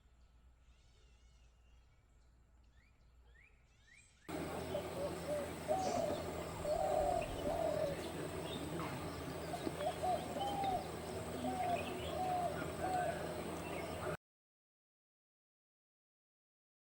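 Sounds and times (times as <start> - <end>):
background hiss: 4.3 - 14.2
bird calling short arched notes: 4.3 - 14.2
higher bird chirps: 4.3 - 14.2.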